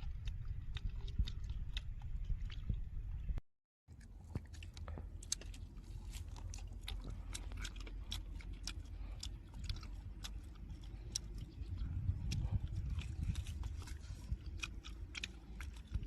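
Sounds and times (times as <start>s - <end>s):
person chewing food: 0.0s - 3.3s, 3.9s - 16.0s
low steady hum: 0.0s - 16.0s
mouth smacks and clicks: 4.3s - 16.0s.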